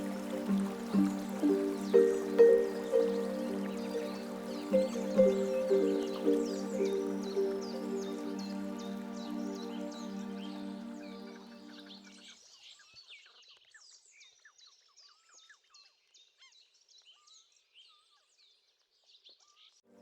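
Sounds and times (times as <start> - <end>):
small birds chirping: 0.0 - 12.1
soft music: 0.0 - 12.3.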